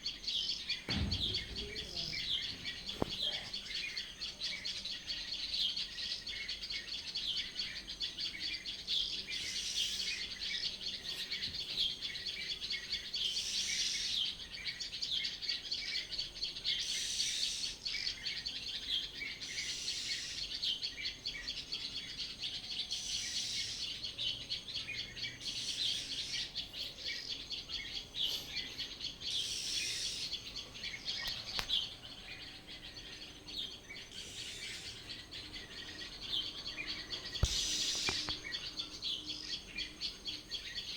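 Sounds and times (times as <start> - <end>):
birds chirping and singing: 0.0 - 40.9
high bird call: 36.4 - 39.0.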